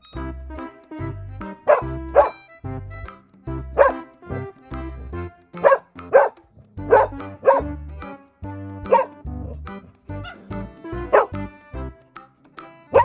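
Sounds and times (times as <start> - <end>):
music with steady bass line: 0.0 - 13.0
bark-like sounds: 1.6 - 2.4, 3.8 - 4.0, 5.6 - 7.8, 8.9 - 9.2, 10.2 - 11.4.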